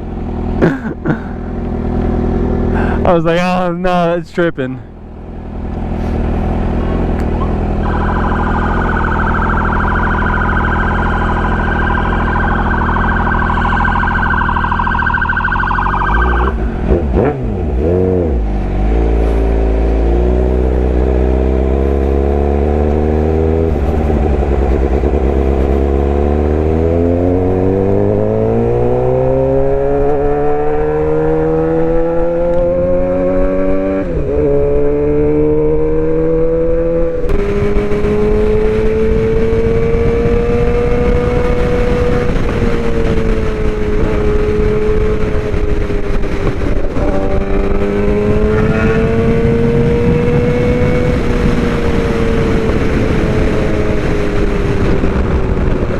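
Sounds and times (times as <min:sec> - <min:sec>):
motorcycle engine running: 0:04.9 - 0:30.8, 0:34.5 - 0:55.9
steady high tone: 0:07.4 - 0:16.6.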